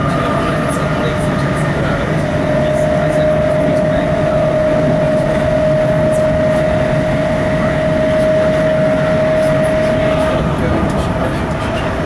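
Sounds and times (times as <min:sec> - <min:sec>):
steady whine: 0:00.0 - 0:12.0
train wheels rumbling on track: 0:00.0 - 0:12.0.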